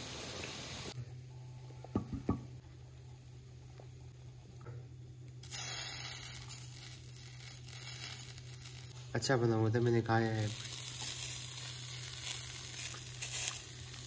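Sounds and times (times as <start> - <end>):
fries sizzling in hot oil: 0.0 - 1.0, 5.4 - 9.0, 9.8 - 14.0
steady low hum: 0.9 - 14.0
patties sizzling in flat pan: 5.3 - 9.0, 9.6 - 14.0.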